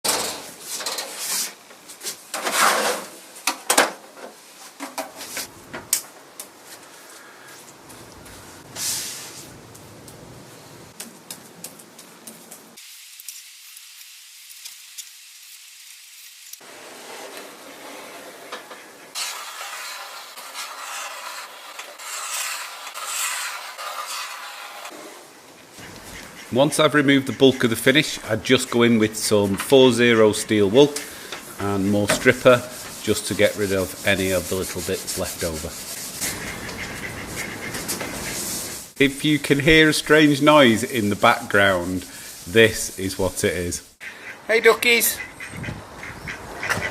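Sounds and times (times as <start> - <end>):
rubbing hiss: 6.6 - 9.6, 16.8 - 44.1.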